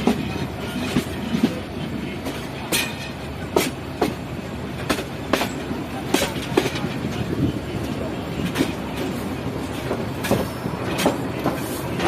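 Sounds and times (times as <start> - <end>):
train rumble: 0.0 - 12.0
wheels clacking over rail joints: 2.2 - 4.2, 4.8 - 12.0.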